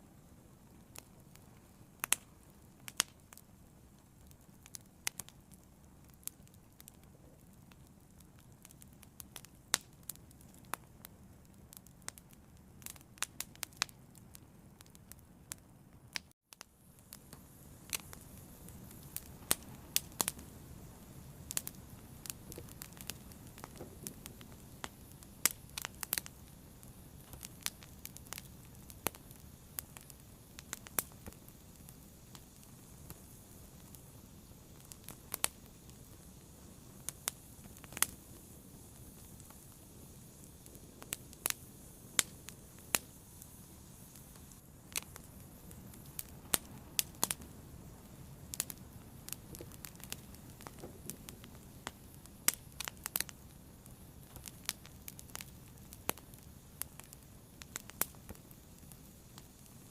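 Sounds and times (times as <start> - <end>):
fire crackling and popping: 0.0 - 59.9.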